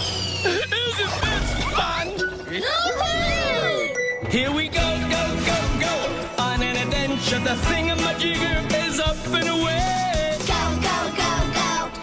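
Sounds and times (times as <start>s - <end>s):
sliding whistle sound effects: 0.0s - 1.2s
cartoon music: 0.0s - 12.0s.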